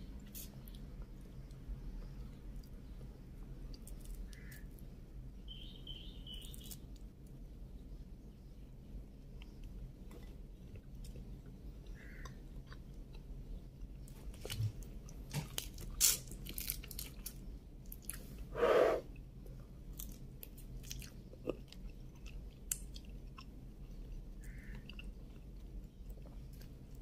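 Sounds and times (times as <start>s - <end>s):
person chewing shrimp: 9.4s - 17.3s, 19.9s - 27.0s.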